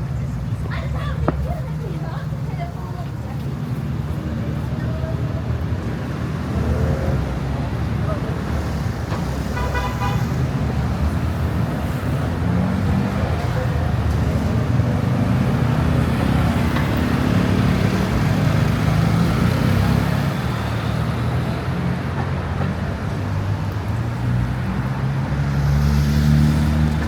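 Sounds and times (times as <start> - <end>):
vehicle engines running: 0.0 - 27.0.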